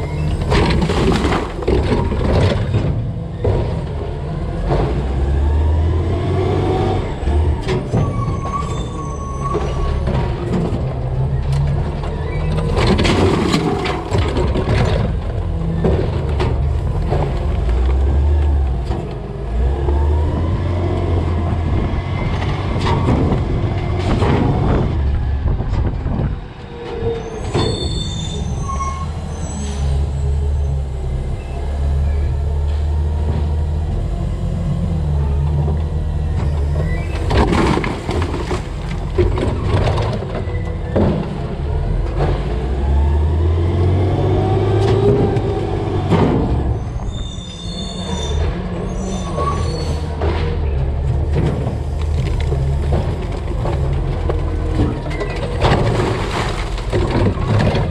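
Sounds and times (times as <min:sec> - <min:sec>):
garbage truck engine running: 0:00.0 - 0:26.4, 0:30.0 - 0:57.9
trash crashing into hopper: 0:00.2 - 0:03.9, 0:12.5 - 0:19.2, 0:22.2 - 0:26.4, 0:36.8 - 0:42.6, 0:44.7 - 0:47.2, 0:50.2 - 0:57.9.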